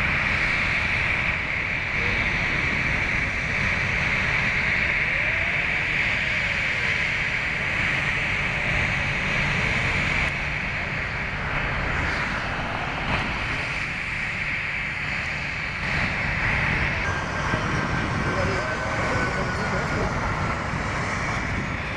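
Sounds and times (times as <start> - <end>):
jet engines running: 0.0 - 21.9.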